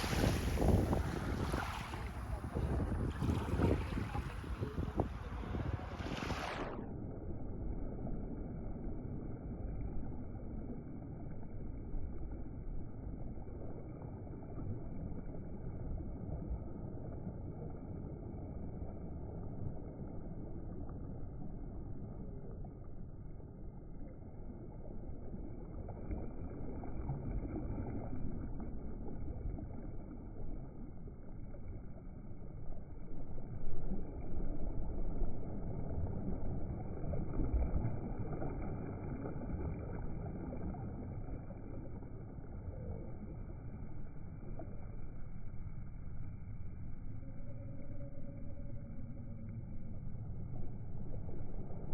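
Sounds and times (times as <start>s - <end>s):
wind rushing: 0.0s - 6.7s
water rushing: 0.0s - 6.8s.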